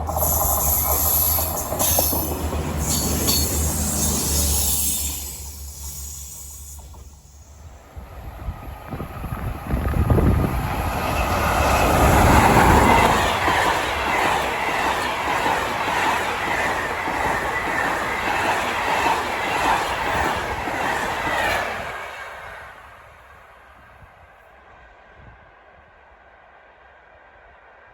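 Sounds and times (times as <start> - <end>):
wheels clattering over rail joints: 0.0 - 7.2
train passing at speed: 0.0 - 27.9.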